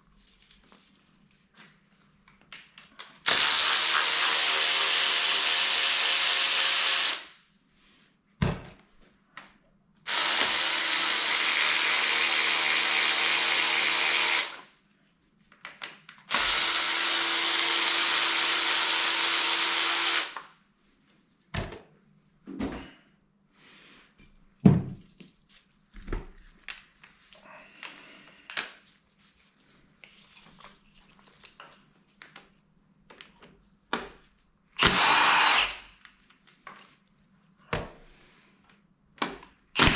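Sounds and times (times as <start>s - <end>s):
power drill running: 3.3s - 7.3s, 10.1s - 14.6s, 16.3s - 20.5s, 34.8s - 35.8s.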